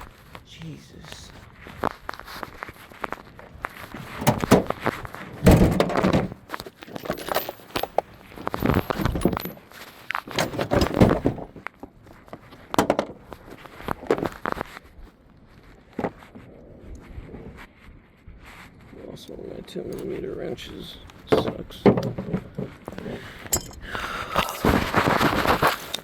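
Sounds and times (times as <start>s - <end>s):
metal hand tools clinking: 6.7s - 11.2s, 23.4s - 23.9s.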